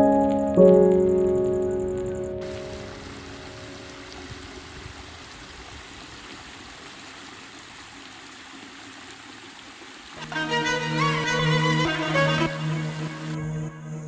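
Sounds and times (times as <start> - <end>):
piano note: 0.0 - 3.6
flowing stream: 2.4 - 13.4.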